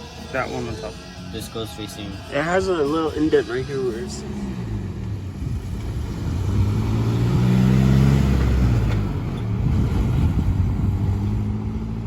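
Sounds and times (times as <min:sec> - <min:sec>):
vehicle engine running: 0:02.8 - 0:12.0.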